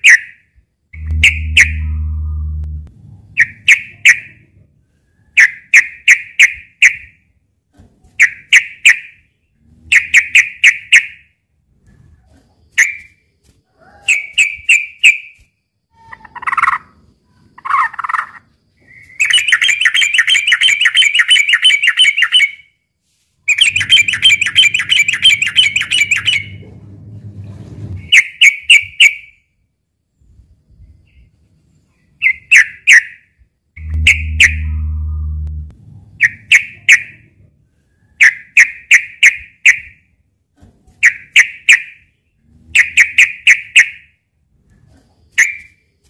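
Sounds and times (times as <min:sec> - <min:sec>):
bird chirping and chattering: 0:01.0 - 0:02.6, 0:23.5 - 0:26.5, 0:33.8 - 0:35.2
low hum: 0:01.0 - 0:03.7, 0:23.6 - 0:28.1, 0:33.8 - 0:37.6.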